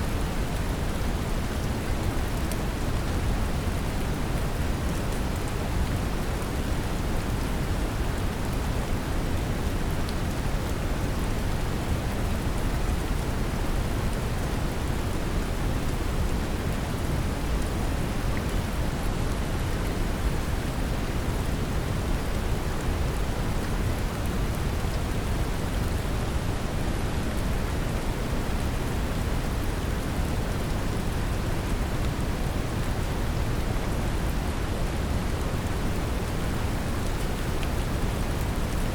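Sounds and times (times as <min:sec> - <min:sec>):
gentle rain hiss: 0:00.0 - 0:38.9.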